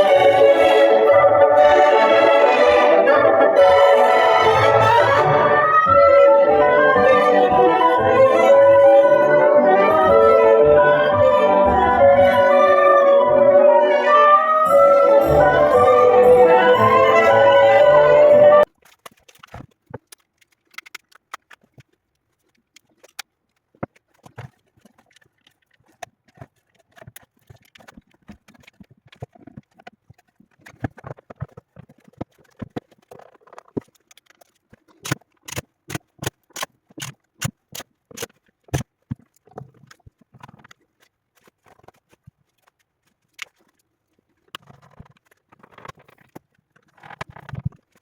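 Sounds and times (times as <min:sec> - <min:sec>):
music: 0:00.0 - 0:18.7.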